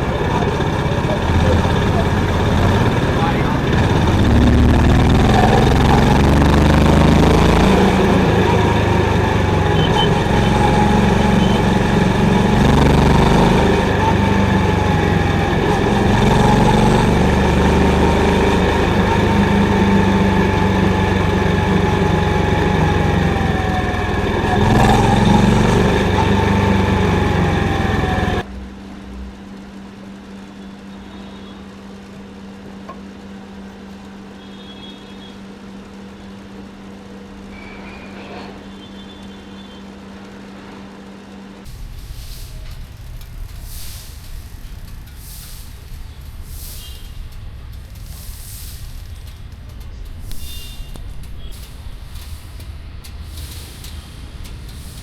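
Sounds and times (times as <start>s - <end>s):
motorcycle engine running: 0.0s - 28.5s, 41.7s - 55.0s
quiet steady hum: 41.6s - 55.0s.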